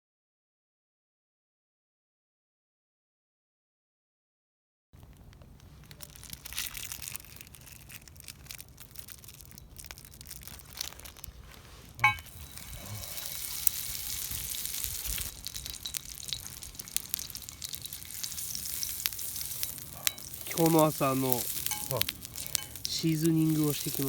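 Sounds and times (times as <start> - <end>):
food sizzling in a hot pan: 12.0 - 24.0
sharp clink: 21.6 - 22.8.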